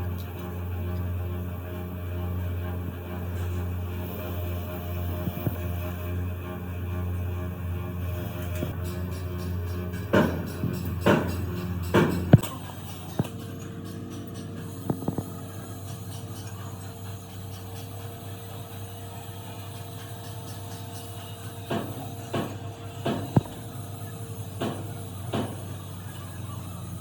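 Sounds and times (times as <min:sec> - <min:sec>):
steady low hum: 0:00.0 - 0:27.0
sharp knocks of tools: 0:08.6 - 0:12.6, 0:21.7 - 0:23.7, 0:24.6 - 0:25.7.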